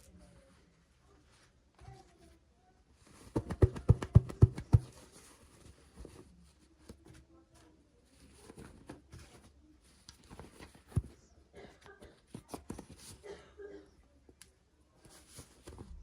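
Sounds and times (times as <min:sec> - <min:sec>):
sharp taps on toys: 0:03.2 - 0:05.0.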